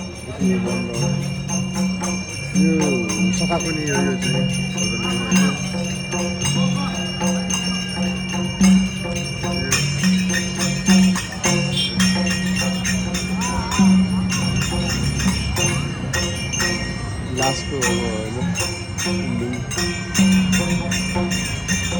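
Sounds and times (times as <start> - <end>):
hand cymbals ringing: 0.0 - 21.9.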